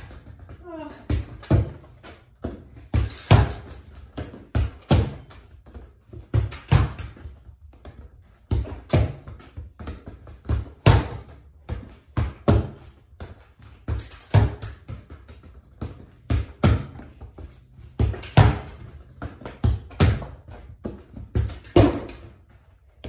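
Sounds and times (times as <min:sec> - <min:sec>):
ball thudding against wall: 0:17.9 - 0:22.4.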